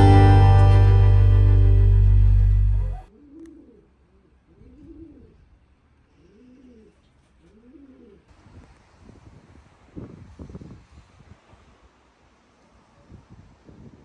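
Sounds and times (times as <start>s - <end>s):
acoustic guitar music: 0.0s - 3.0s.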